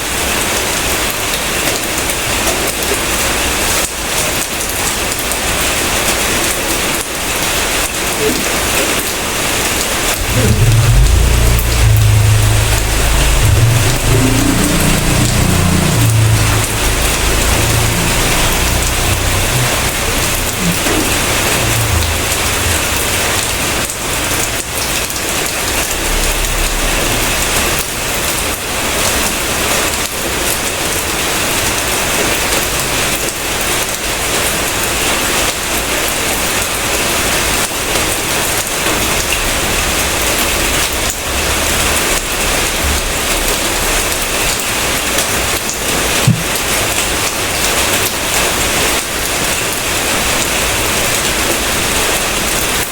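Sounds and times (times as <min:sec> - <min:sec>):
heavy rain falling: 0:00.0 - 0:52.9
low rumble: 0:10.0 - 0:29.4, 0:46.3 - 0:46.9.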